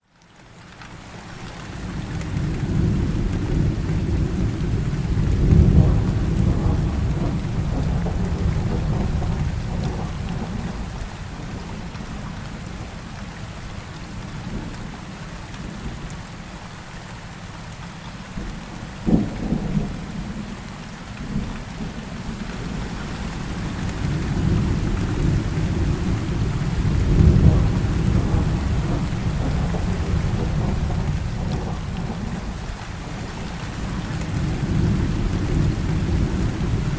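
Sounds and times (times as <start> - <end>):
heavy rain: 0.0 - 36.9
rolling thunder: 2.2 - 12.0, 21.3 - 36.9
sharp thunder crack: 5.3 - 10.5, 23.6 - 32.4.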